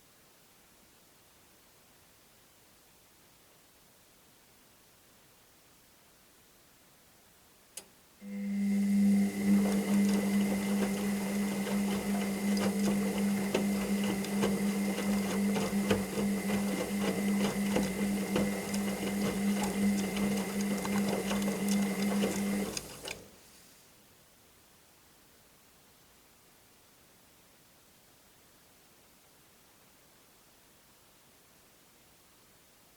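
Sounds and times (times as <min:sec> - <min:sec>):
washing machine drum turning: 0:08.3 - 0:23.3.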